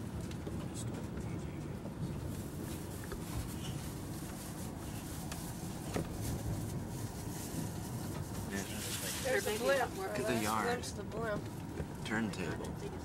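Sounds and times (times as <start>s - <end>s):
train wheels rumbling on rails: 0.0s - 10.2s.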